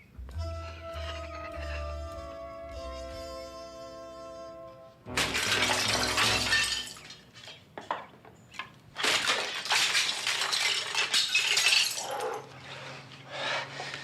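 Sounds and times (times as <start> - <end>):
glass shattering: 5.1 - 7.6, 9.0 - 12.2.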